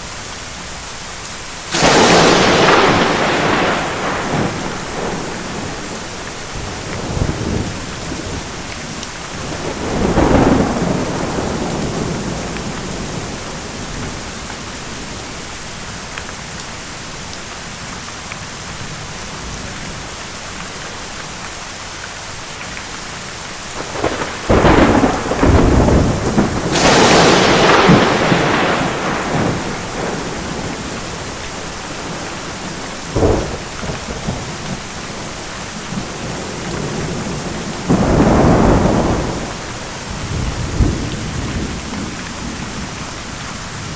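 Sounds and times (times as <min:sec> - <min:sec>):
heavy rain: 0:00.0 - 0:43.9
thunder rumbling and cracking: 0:01.7 - 0:15.5, 0:23.6 - 0:43.9.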